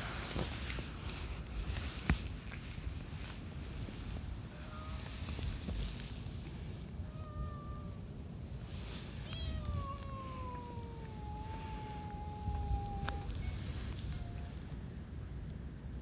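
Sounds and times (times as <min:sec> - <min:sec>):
cat yowling: 0:07.0 - 0:08.0, 0:09.1 - 0:14.7.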